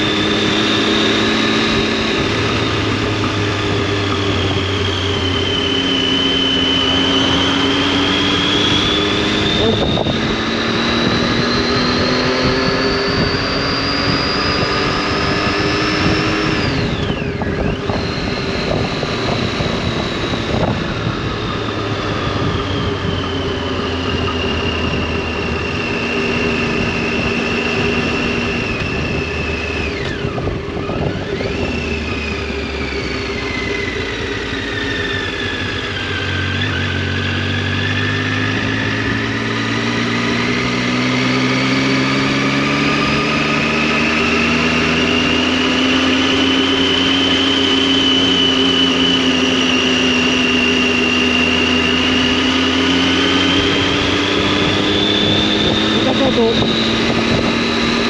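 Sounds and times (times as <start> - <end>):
motorcycle engine and exhaust: 0.0 - 58.0.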